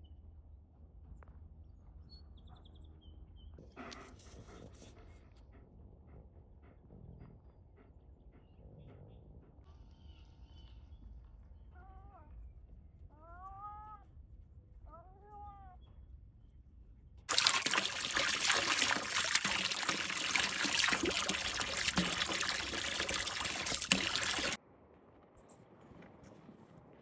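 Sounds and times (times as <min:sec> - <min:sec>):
loud rush of pouring water: 0:17.3 - 0:24.6.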